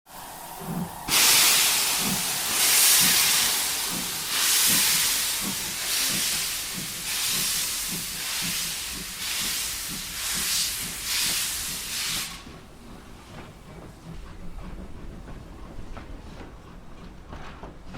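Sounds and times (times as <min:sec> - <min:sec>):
steam hissing: 0:00.1 - 0:13.5
steam locomotive chuffing: 0:00.1 - 0:17.9.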